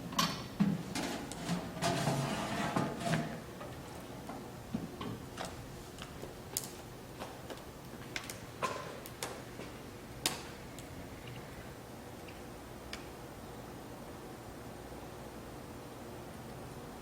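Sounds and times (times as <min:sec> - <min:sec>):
sharp clicks and light knocks: 0:03.6 - 0:11.4.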